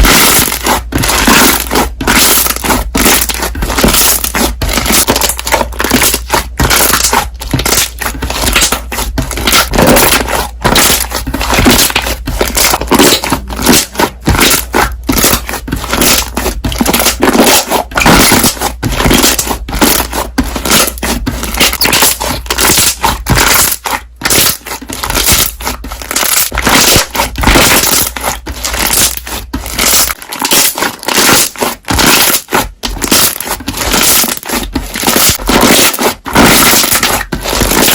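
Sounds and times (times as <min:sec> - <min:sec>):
slime squeezed popping bubbles: 0:00.0 - 0:37.9.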